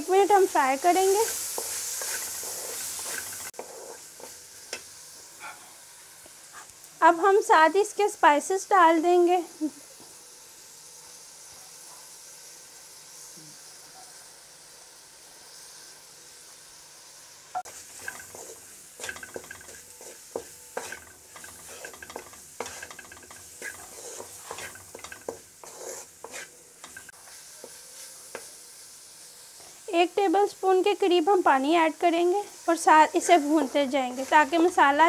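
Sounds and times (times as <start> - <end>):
food sizzling in a metal pan: 0.0 - 35.0
wooden spoon scraping a pan: 0.3 - 4.9, 17.7 - 28.6.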